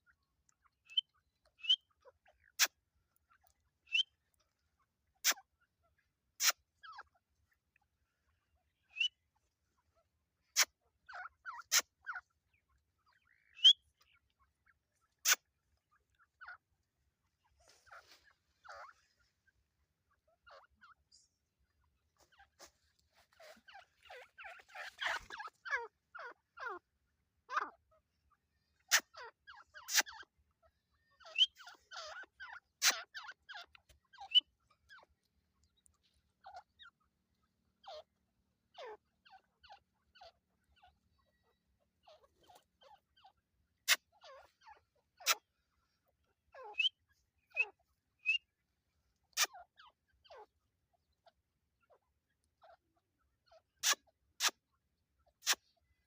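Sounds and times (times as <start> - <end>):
birds calling: 0.9 - 1.9, 3.9 - 4.1, 13.1 - 14.3, 22.2 - 26.7, 31.1 - 34.5, 46.5 - 48.4.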